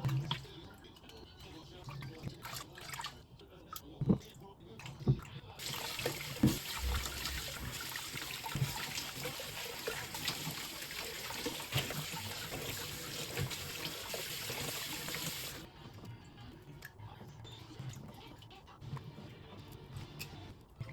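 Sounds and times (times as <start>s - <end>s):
water running from tap: 5.6s - 15.7s.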